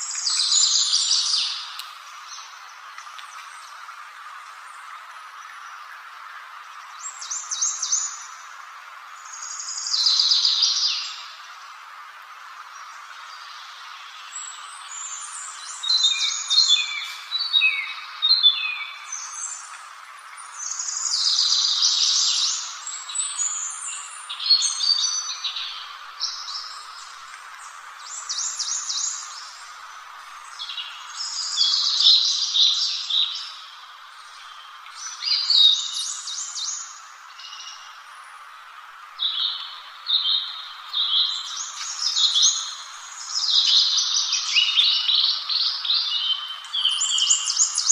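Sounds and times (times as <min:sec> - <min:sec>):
steady background hiss: 0:00.0 - 0:47.9
songbird twittering: 0:12.7 - 0:38.6, 0:39.2 - 0:47.9.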